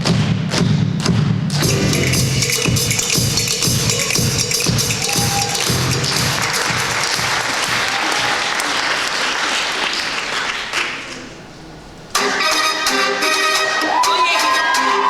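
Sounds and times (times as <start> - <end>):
music: 0.0 - 8.0, 12.1 - 15.0
audience applauding: 3.9 - 12.4.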